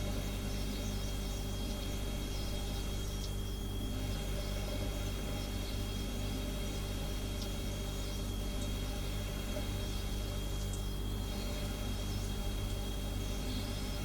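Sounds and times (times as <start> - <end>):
high steady whine: 0.0 - 14.0
refrigerator humming: 0.0 - 14.0.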